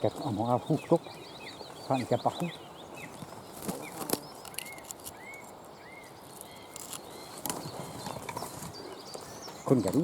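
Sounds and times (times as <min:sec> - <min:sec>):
small birds chirping: 0:00.0 - 0:10.0
brush and twigs snapping: 0:03.2 - 0:05.4, 0:06.3 - 0:07.7.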